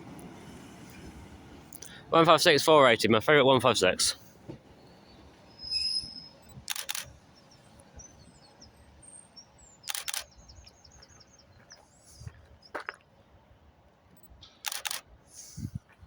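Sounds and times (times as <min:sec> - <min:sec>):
small birds chirping: 0:04.7 - 0:12.8
sharp double clicks: 0:06.6 - 0:07.1, 0:09.9 - 0:10.3, 0:14.2 - 0:15.0.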